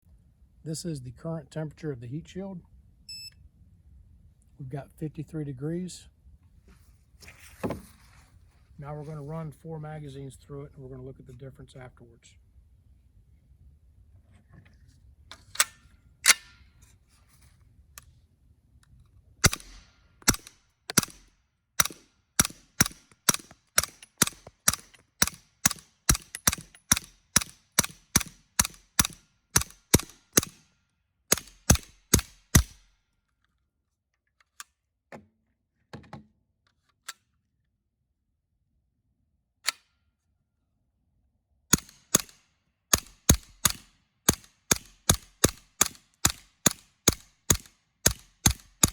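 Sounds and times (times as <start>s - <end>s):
suppressed gunshots: 19.4s - 30.6s, 31.3s - 32.8s, 41.7s - 48.9s.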